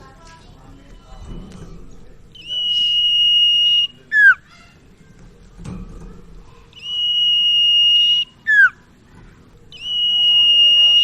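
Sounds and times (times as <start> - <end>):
bird whistling song: 2.3 - 4.7, 6.7 - 8.9, 9.7 - 11.0.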